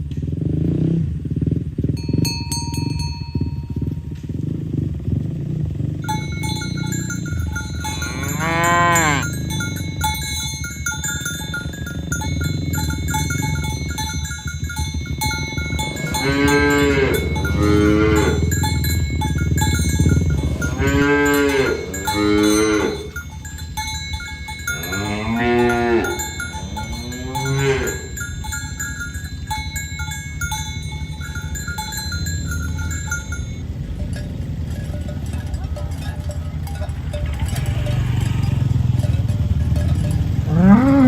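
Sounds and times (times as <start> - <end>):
bells clinking: 1.9 - 41.0
cattle mooing: 6.0 - 10.2, 15.2 - 18.9, 19.8 - 23.2, 24.7 - 28.2, 40.1 - 41.0.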